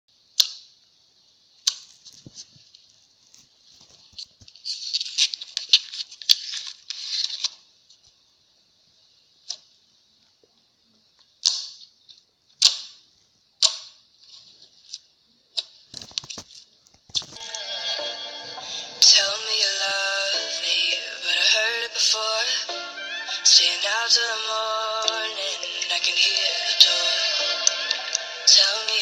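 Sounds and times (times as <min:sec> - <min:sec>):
slime crackling and popping: 0:15.6 - 0:17.4.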